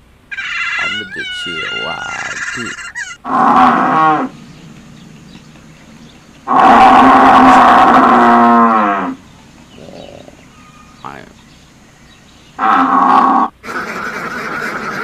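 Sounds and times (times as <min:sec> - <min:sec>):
cow mooing: 0:00.8 - 0:05.3, 0:05.9 - 0:11.1.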